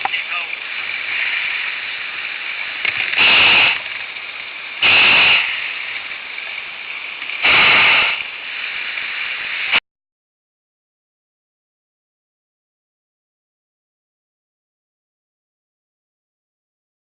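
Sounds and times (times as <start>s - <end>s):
propane burner blasts: 0.0s - 9.8s
steady hiss: 0.1s - 9.8s.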